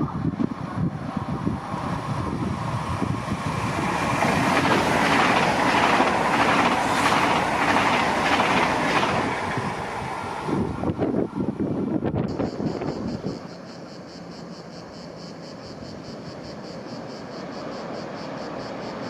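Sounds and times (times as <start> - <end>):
train passing: 0.0 - 19.0.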